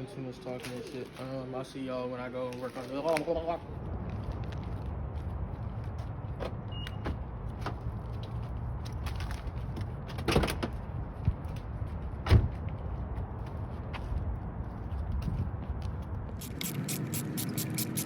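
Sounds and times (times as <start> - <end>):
steady low rumble: 3.6 - 6.4.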